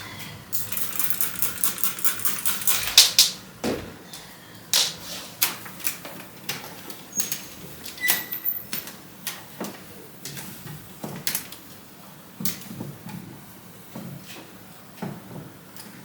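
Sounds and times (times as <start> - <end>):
household objects clicking and knocking: 0.6 - 3.4.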